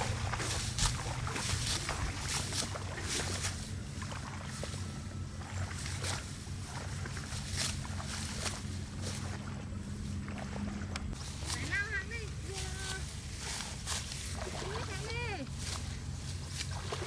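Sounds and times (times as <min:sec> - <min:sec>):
rustling swishes: 0:00.0 - 0:05.0, 0:11.1 - 0:17.0
small engine running: 0:00.0 - 0:17.0.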